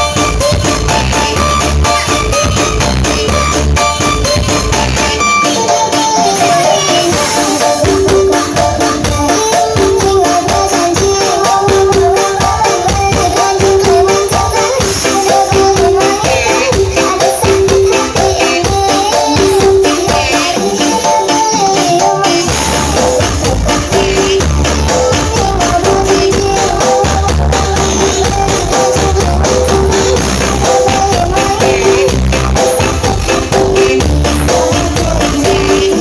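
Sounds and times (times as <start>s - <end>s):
loud music with fast percussion: 0.0s - 36.0s.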